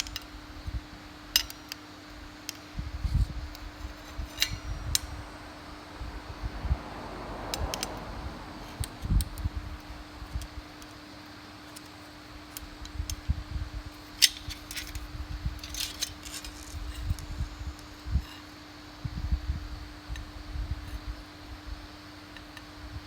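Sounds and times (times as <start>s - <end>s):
electric hum: 0.0s - 23.0s
clicks and taps on parts: 1.3s - 2.7s.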